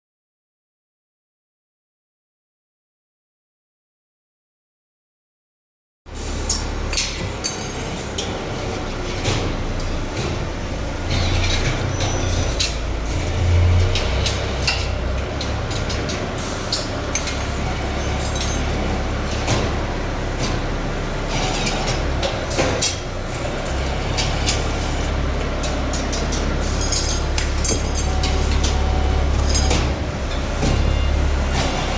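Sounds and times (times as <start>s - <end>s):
hydraulic press low hum: 6.1s - 31.9s
sharp metallic clinks and knocks: 16.7s - 18.8s, 25.6s - 28.8s.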